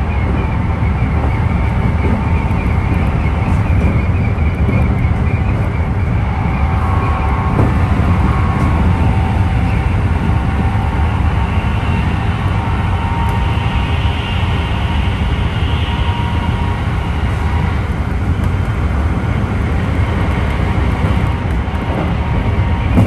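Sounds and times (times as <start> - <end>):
train motor low rumble: 0.0 - 23.0.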